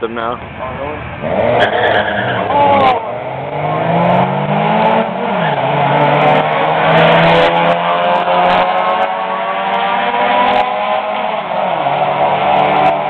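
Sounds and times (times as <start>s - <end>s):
car engines accelerating: 0.0s - 13.0s.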